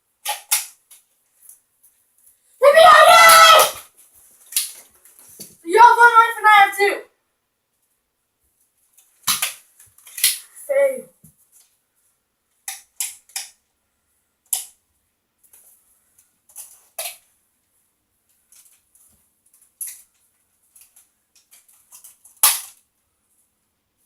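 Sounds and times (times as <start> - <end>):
toy blasters popping: 9.2 - 10.4, 22.4 - 22.7.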